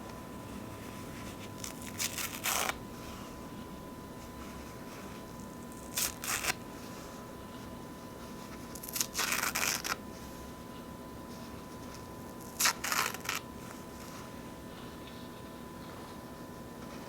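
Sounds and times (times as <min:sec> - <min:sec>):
paper towel ripping: 0:00.9 - 0:03.4, 0:04.4 - 0:07.1, 0:08.4 - 0:10.1, 0:11.9 - 0:14.4.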